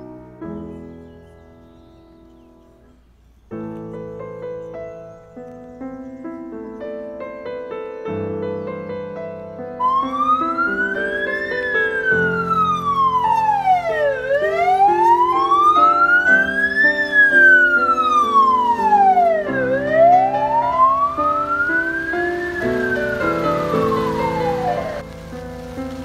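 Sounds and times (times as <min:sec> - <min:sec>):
music of sustained chords: 0:00.0 - 0:26.0
siren wailing: 0:09.8 - 0:25.0.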